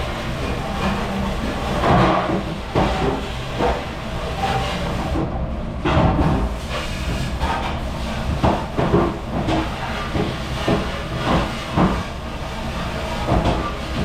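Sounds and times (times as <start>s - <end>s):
dishes and racks clattering: 0.4s - 5.2s, 12.9s - 14.0s.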